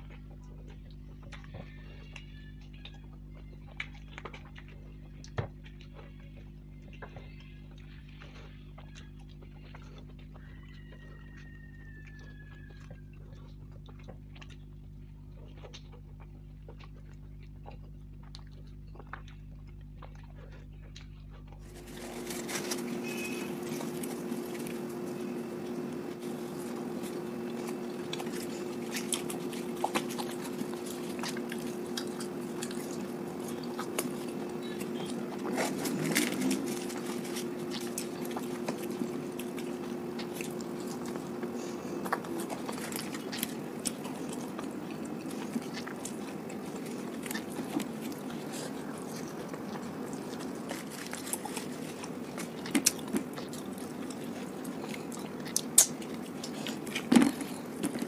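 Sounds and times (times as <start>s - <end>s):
close chewing and biting: 0.0s - 58.0s
low hum: 12.2s - 58.0s
soft crunches: 18.9s - 58.0s
wet mouth sounds: 22.6s - 58.0s.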